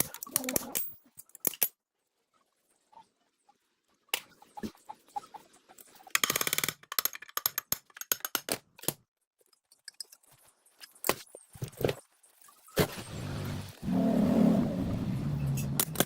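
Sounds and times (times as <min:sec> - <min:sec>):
metal tools clicking and knocking: 0:06.2 - 0:09.0.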